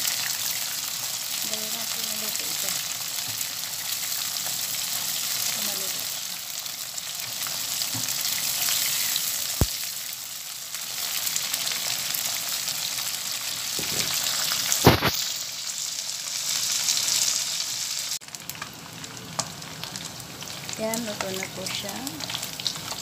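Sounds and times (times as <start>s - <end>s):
shrimp sizzling in oil: 0.0s - 23.0s
sharp knock: 14.8s - 15.2s.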